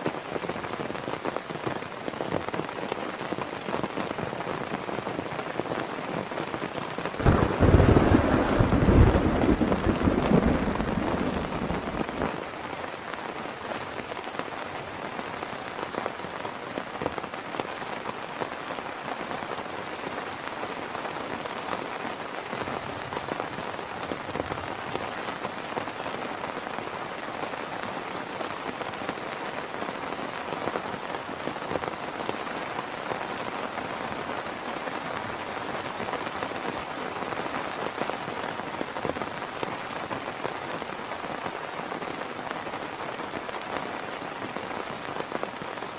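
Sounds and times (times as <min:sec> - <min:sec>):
heavy rain pattering: 0:00.0 - 0:45.9
thunder rumble: 0:07.2 - 0:12.3.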